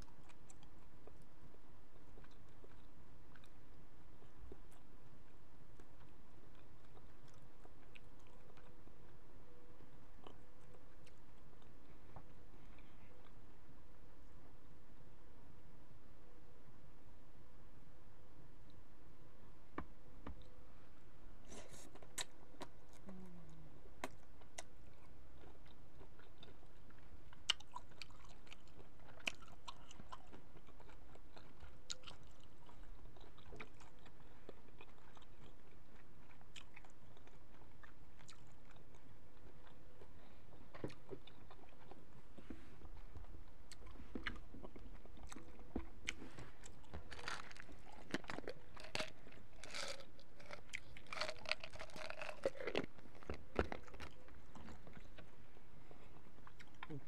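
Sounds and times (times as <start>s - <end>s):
person chewing with mouth clicks: 21.5s - 55.3s, 56.2s - 57.0s.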